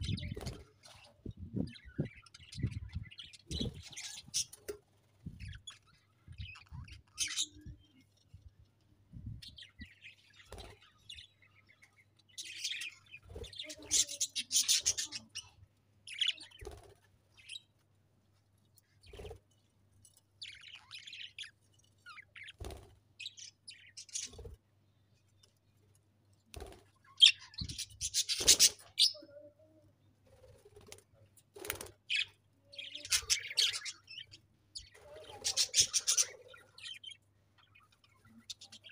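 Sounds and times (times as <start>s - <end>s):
budgerigars chirping and chattering: 0.0s - 4.6s, 5.4s - 7.8s, 12.2s - 16.8s, 23.2s - 24.5s, 27.1s - 29.3s, 32.0s - 38.9s.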